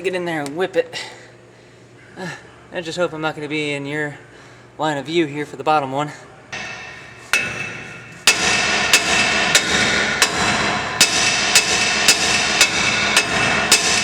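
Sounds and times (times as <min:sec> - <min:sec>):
steady loud noise: 0:06.5 - 0:14.0
hammer striking metal: 0:06.6 - 0:14.0.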